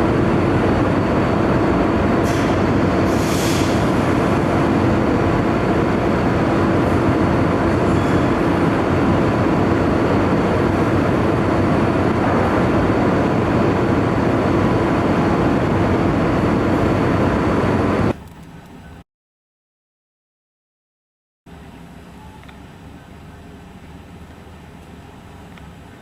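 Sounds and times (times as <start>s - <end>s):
engine rumble: 0.0s - 19.0s.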